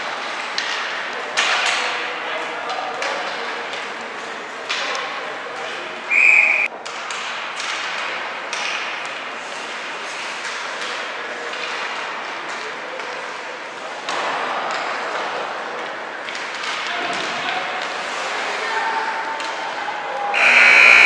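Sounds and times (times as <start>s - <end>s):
crowd noise: 2.0s - 6.9s, 12.6s - 21.0s
referee's whistle blast: 6.1s - 6.7s, 20.4s - 21.0s.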